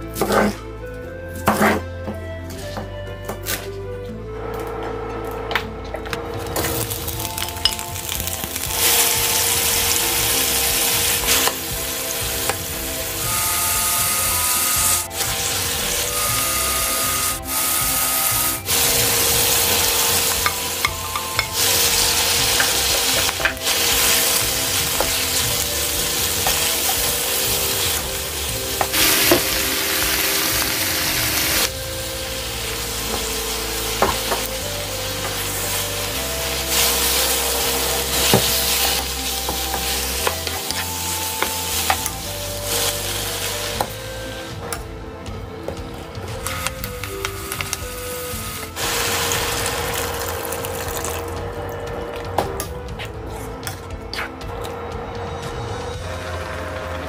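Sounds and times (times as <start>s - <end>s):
food sizzling in hot oil: 6.8s - 44.0s, 46.5s - 51.3s
wooden spatula scraping wok: 14.4s - 44.0s.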